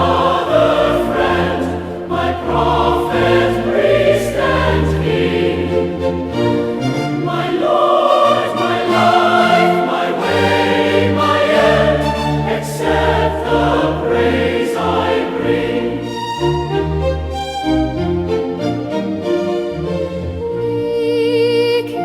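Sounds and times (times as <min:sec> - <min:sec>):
choir singing a hymn: 0:00.0 - 0:16.6.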